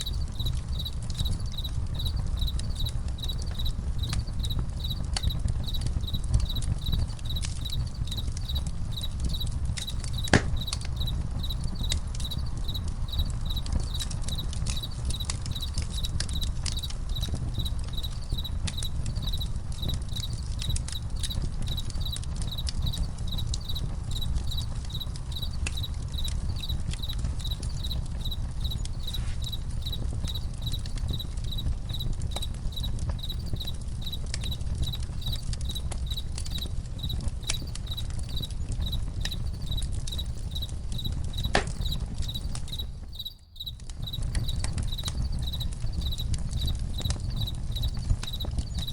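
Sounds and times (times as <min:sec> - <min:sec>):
campfire crackling and popping: 0:00.0 - 0:48.9
crickets chirping: 0:00.0 - 0:48.9.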